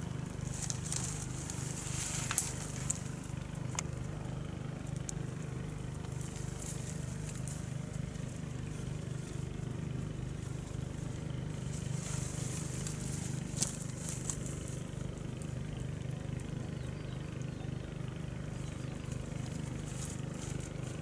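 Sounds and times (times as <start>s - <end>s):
small engine humming: 0.0s - 21.0s
faint crackles: 0.4s - 4.0s, 10.4s - 15.5s.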